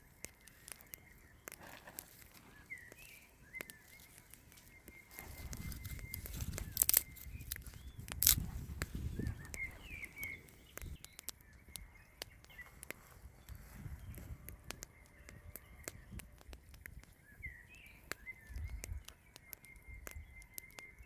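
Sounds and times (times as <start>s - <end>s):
low rustling handling noise: 0.0s - 11.1s
birds chirping: 0.0s - 21.0s.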